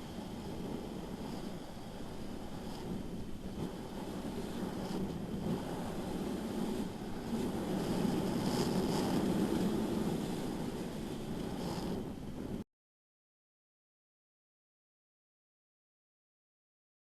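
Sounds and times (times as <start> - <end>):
wind rushing over microphone: 0.0 - 12.6.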